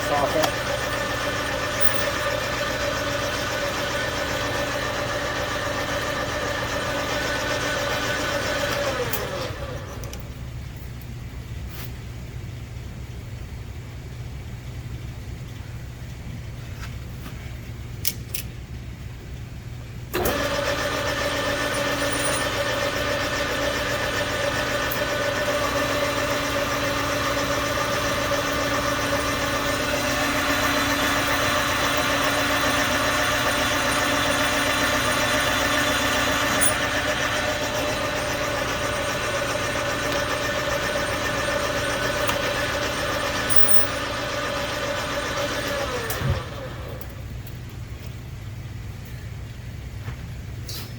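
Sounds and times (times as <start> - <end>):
lathe spindle spinning down: 0.0 - 10.1, 20.1 - 47.1
metal lathe whine: 0.0 - 10.1, 20.2 - 47.1.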